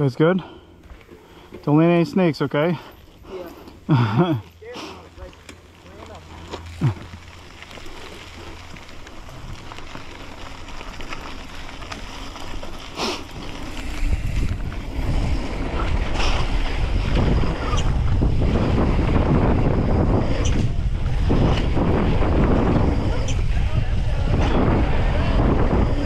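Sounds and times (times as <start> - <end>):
wind buffeting microphone: 6.1 - 26.0.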